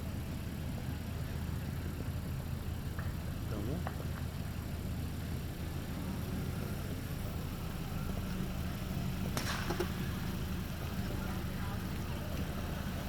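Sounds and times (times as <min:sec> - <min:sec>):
firework crack: 0:09.2 - 0:10.5.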